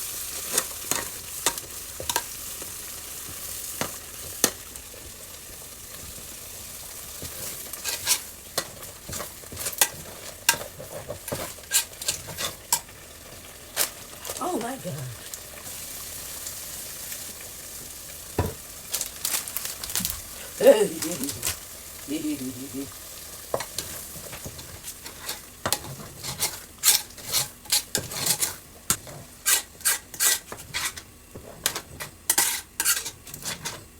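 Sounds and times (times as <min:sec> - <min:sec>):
food sizzling in a pot: 0:00.0 - 0:33.9
spoon scraping and knocking pot: 0:00.5 - 0:02.3, 0:07.2 - 0:12.9, 0:23.5 - 0:33.9.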